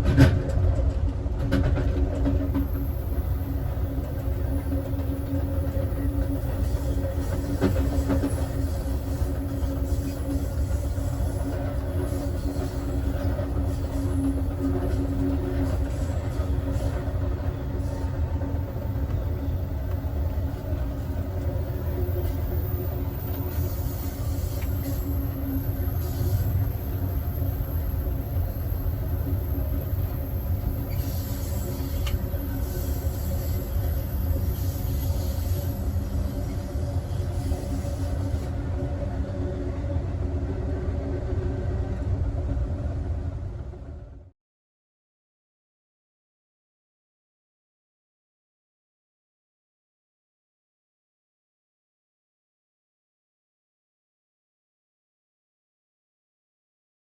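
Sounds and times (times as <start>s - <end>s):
train wheels rumbling on rail: 0.0s - 44.3s.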